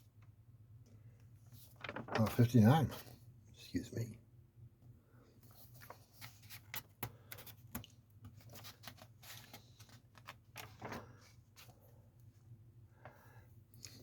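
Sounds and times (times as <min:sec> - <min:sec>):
magazine pages turning: 0:01.5 - 0:03.0, 0:05.5 - 0:11.8.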